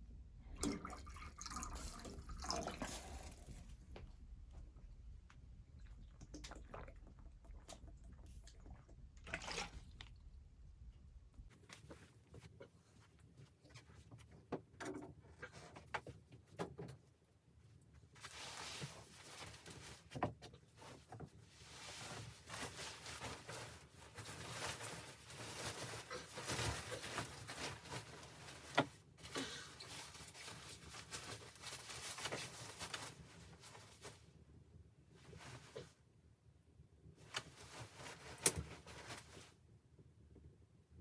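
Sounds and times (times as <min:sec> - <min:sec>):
scraping and rustling handling: 0:18.1 - 0:34.3.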